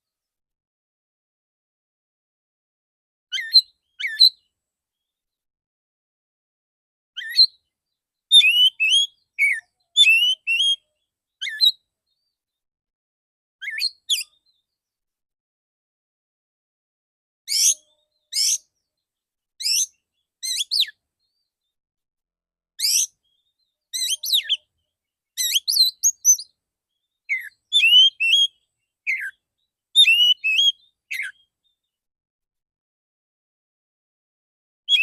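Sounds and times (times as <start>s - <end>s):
bird singing whistled notes: 3.3s - 5.2s, 7.2s - 7.7s, 8.3s - 12.4s, 13.6s - 14.8s, 17.5s - 19.0s, 19.6s - 21.8s, 22.8s - 31.9s.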